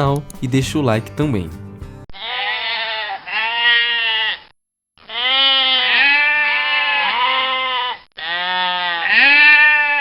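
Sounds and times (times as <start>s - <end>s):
sheep bleating: 2.1s - 10.0s.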